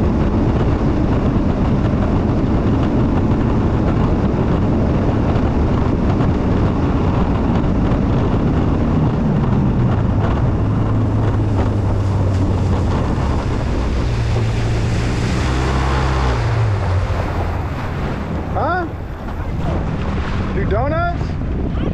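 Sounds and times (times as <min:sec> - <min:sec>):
jet ski engine running: 0:00.0 - 0:21.9
water rushing past hull: 0:00.0 - 0:21.9
wind buffeting microphone: 0:00.0 - 0:21.9.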